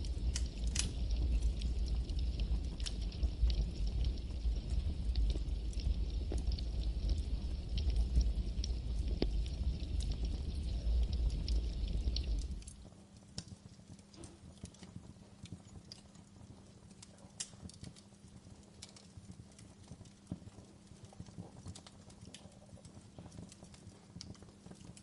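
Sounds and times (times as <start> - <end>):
campfire crackling and popping: 0.0 - 25.0
faint low background hum: 0.0 - 25.0.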